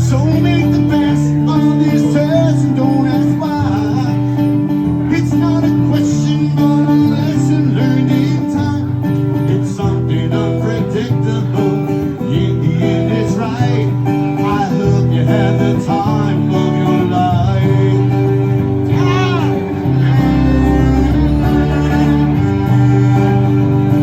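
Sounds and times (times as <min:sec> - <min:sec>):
strummed acoustic guitar: 0:00.0 - 0:24.0
person singing: 0:05.0 - 0:24.0.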